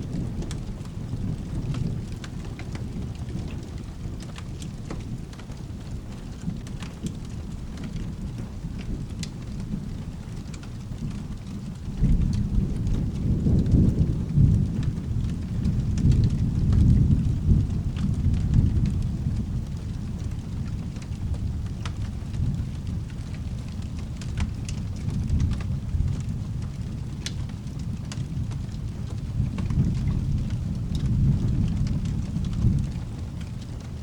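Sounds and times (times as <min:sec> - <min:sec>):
steady rain: 0:00.0 - 0:34.0
thunder rolling: 0:11.9 - 0:33.2.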